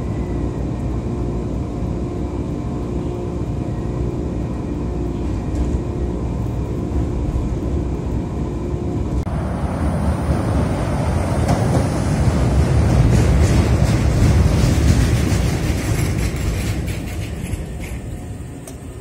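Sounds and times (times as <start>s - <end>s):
rough rush of train noise: 0.0s - 19.0s
train car rumble with motor whine: 0.0s - 19.0s.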